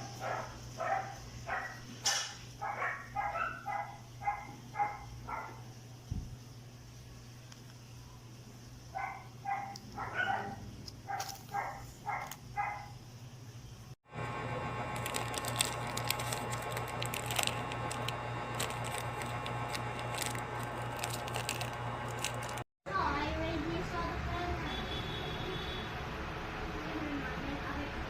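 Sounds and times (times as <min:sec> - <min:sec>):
electrical hum: 0:02.6 - 0:24.2
clicks and crackles: 0:14.9 - 0:22.7.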